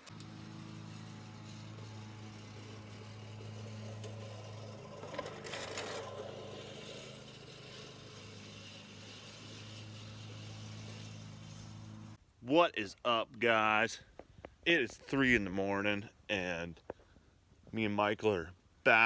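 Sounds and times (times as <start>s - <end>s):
vehicle engine humming: 0.0s - 12.2s.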